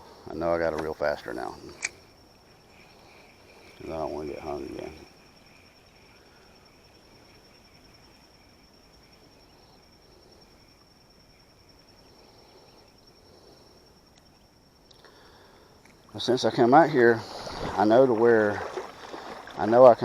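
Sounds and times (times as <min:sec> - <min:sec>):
insects chirring: 0:00.0 - 0:20.0
lower insect trill: 0:00.0 - 0:20.0.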